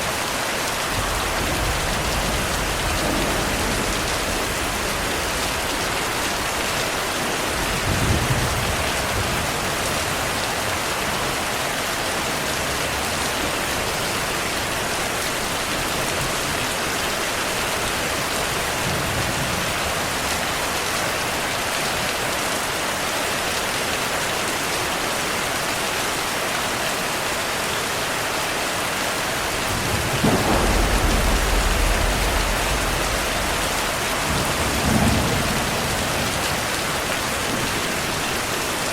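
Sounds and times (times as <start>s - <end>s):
heavy rain: 0.0s - 38.9s
thunder rumbling: 0.8s - 10.0s, 29.4s - 38.5s.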